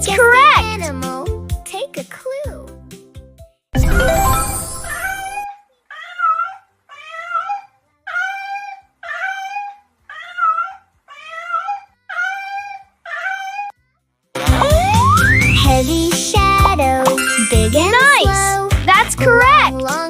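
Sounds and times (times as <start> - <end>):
animal cry sound effect: 5.0 - 13.7.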